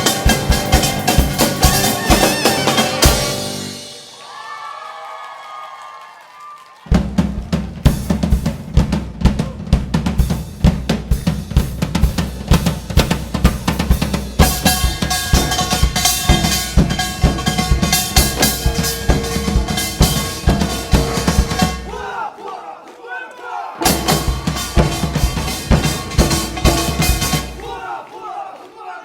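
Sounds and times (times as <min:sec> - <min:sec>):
held melody line: 0:00.0 - 0:04.2, 0:14.4 - 0:21.9
fast live drumming: 0:00.0 - 0:04.6, 0:06.8 - 0:22.1, 0:23.8 - 0:28.0
bass drum hits: 0:07.0 - 0:22.0, 0:23.8 - 0:27.8.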